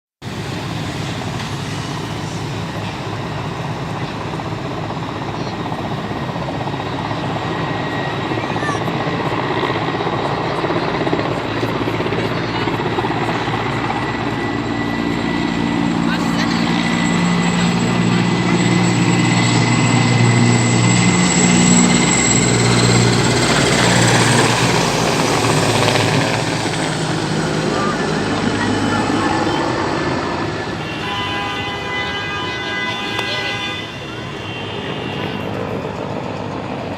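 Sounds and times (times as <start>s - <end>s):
helicopter rotor chop: 0.2s - 31.1s, 32.8s - 36.9s
helicopter engine rush: 0.2s - 36.9s.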